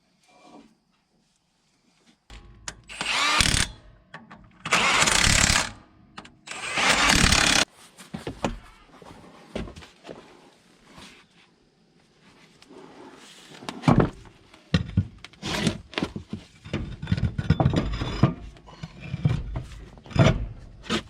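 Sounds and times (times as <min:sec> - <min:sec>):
hand-held power tool bursts: 0:02.6 - 0:07.7.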